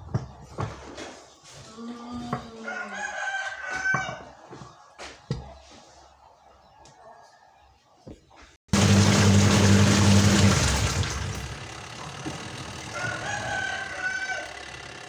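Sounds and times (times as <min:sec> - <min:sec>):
rooster crowing: 0:02.5 - 0:04.6, 0:12.6 - 0:15.0
motor humming: 0:08.8 - 0:15.0.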